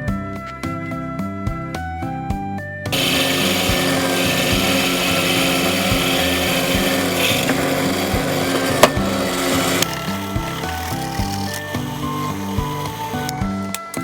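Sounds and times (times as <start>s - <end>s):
background music: 0.0s - 14.0s
power tool whirring on wood: 2.9s - 13.6s.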